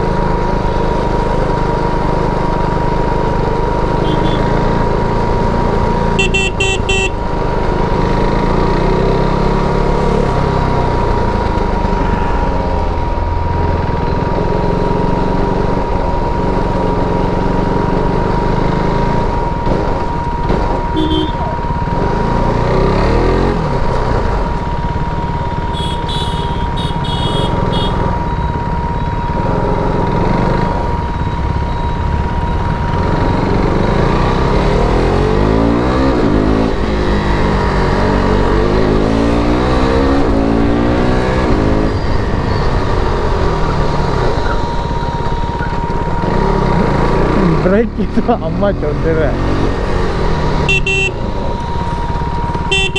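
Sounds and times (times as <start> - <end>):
motorcycle engine: 0.0 - 52.9
vehicle horns honking: 3.9 - 4.8, 6.2 - 7.6, 20.9 - 21.7, 25.5 - 28.2, 50.6 - 51.8, 52.6 - 52.9.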